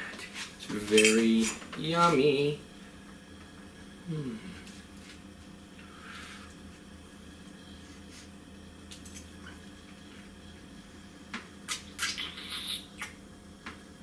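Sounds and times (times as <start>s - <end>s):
room hum: 0.0s - 14.0s
wet eating clicks and smacks: 11.7s - 12.4s.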